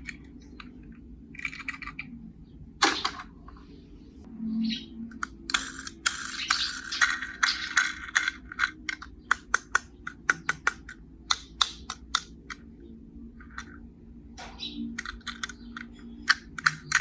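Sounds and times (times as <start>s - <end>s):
sharp clicks: 5.1s - 12.6s, 14.4s - 17.0s.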